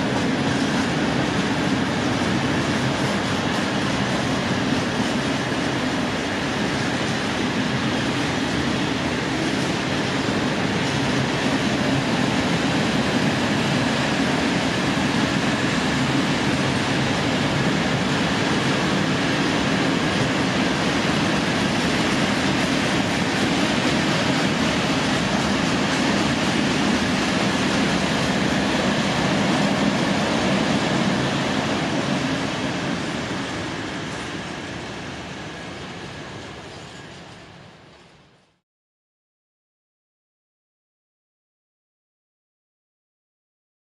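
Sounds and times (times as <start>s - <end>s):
freight train rolling past: 0.0s - 38.6s.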